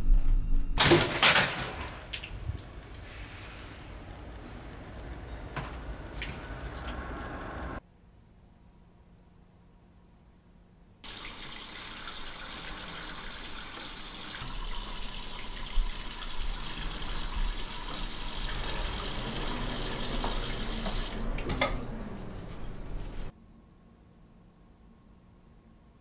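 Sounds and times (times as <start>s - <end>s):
faucet running into sink: 11.1s - 23.3s.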